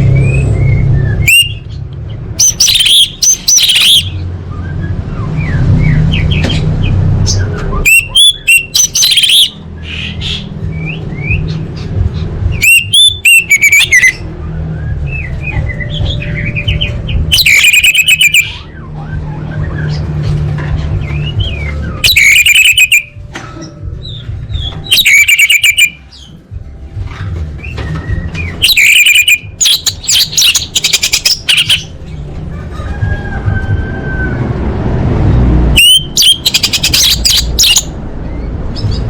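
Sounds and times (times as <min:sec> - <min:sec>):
thrush singing: 0:27.6 - 0:32.3.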